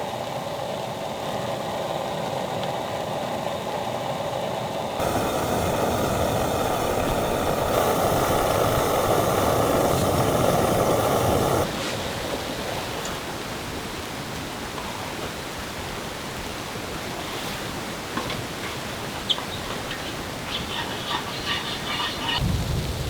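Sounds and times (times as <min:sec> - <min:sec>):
soft even hiss: 0:05.0 - 0:14.2.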